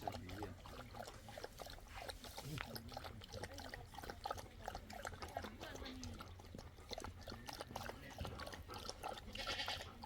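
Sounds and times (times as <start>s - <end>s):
goats: 9.0s - 10.0s.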